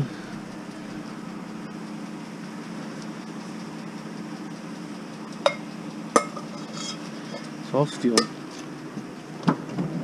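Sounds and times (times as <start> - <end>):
vehicle engine idling: 0.0 - 10.0
metallic clank of steel scrap: 5.4 - 8.6.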